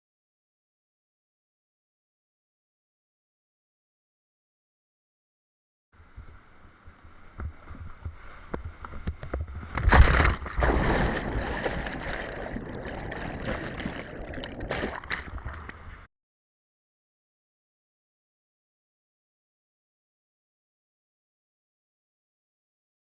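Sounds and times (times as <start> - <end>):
water rushing and splashing: 9.7 - 15.9
loud splash: 9.8 - 15.6.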